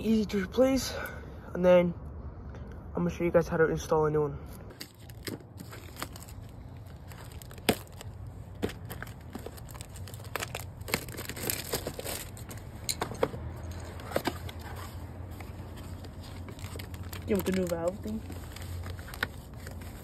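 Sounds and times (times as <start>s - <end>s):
plastic packaging crinkling: 4.7s - 20.0s.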